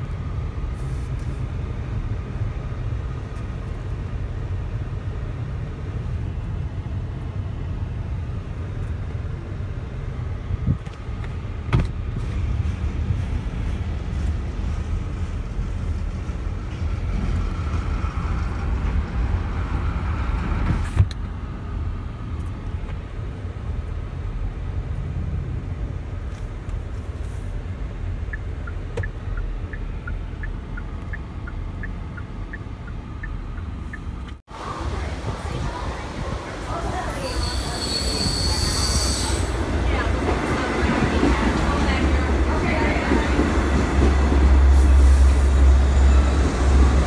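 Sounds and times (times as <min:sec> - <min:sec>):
train rumbling over steel bridge: 0:00.0 - 0:47.0
steady ticking: 0:28.2 - 0:34.4.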